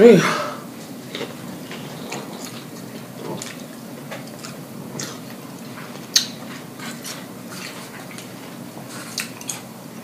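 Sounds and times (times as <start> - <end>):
open-mouth chewing and lip smacking: 2.2 - 9.7.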